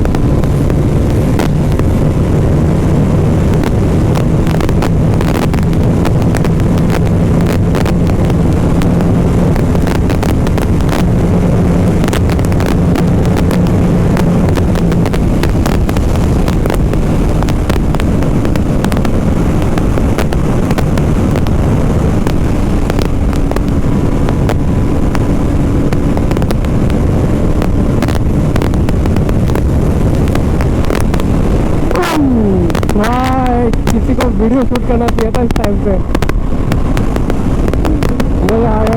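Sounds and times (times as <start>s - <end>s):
motorcycle engine running: 0.0s - 38.9s
wind rush on microphone: 0.0s - 38.9s.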